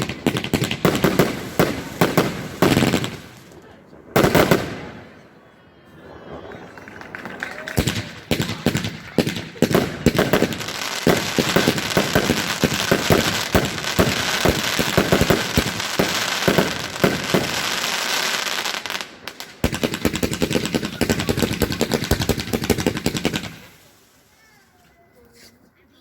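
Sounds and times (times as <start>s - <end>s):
firework pops and crackles: 0.0s - 5.0s, 6.0s - 24.9s.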